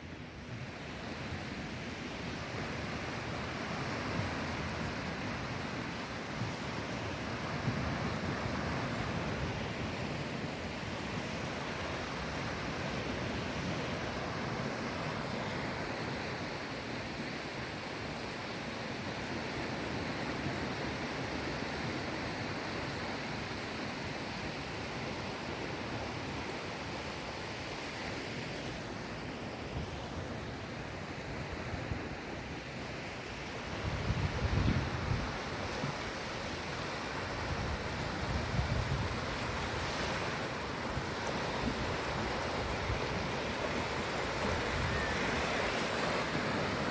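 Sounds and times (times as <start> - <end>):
sea waves washing onto shore: 30.2 - 46.9.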